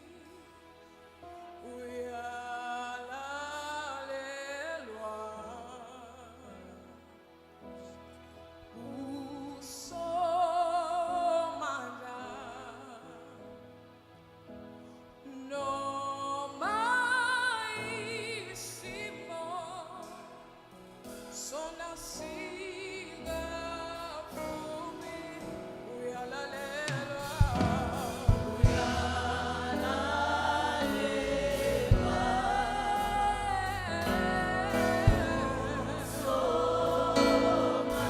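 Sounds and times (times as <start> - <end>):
gospel singing with vibrato: 0.0 - 7.3, 8.8 - 13.6, 15.2 - 38.0
drum beats: 26.9 - 33.2, 34.0 - 38.0
bass line: 27.4 - 38.0.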